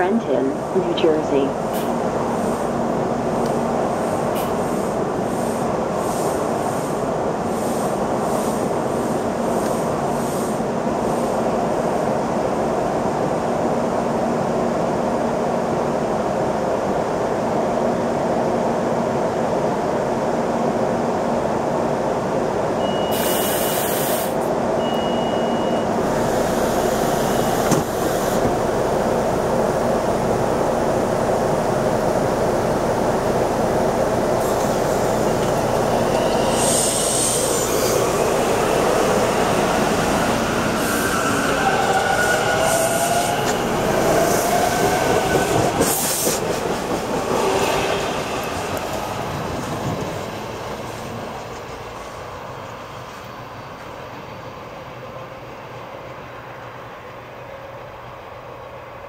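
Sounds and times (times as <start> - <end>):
railcar equipment whir and hum: 0.0 - 59.0
air hiss: 23.1 - 24.4
short high beeps: 24.8 - 25.9.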